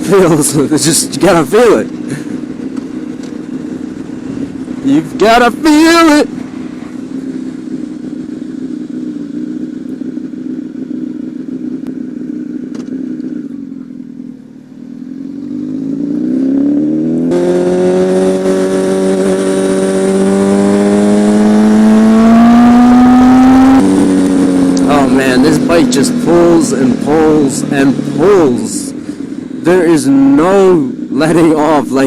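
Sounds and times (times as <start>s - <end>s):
motorcycle engine accelerating: 0.0s - 32.0s
rush of noise: 15.5s - 30.8s.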